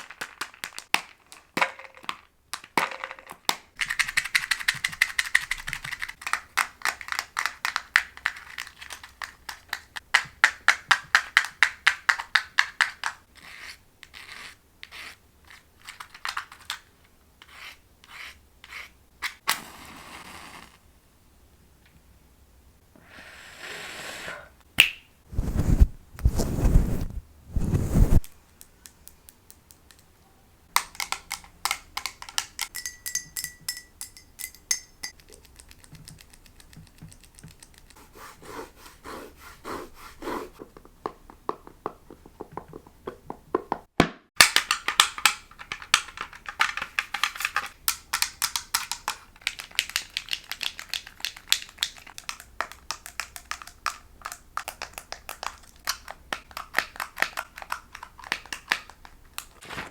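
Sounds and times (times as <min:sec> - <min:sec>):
scratching on objects: 0:25.3 - 0:28.3.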